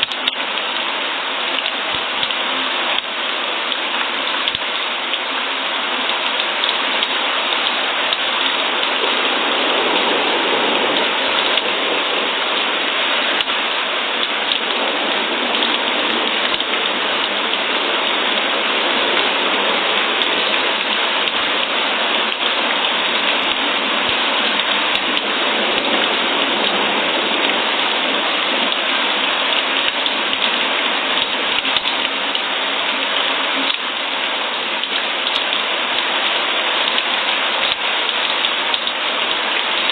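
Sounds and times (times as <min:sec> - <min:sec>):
steady rain falling: 0:00.0 - 0:39.9
ticks of raindrops: 0:00.0 - 0:39.9.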